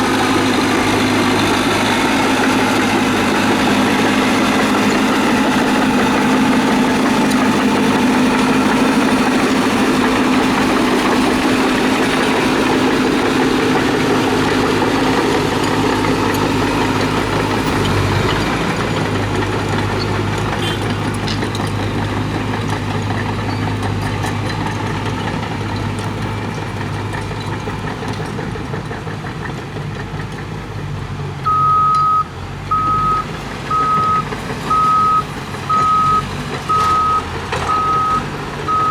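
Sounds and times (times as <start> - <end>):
heavy diesel engine running: 0.0 - 38.9
reversing alarm beeps: 31.5 - 38.9.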